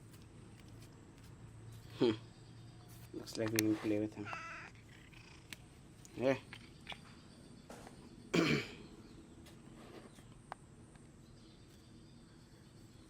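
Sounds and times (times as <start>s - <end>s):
rough vocal sound: 1.9s - 2.3s.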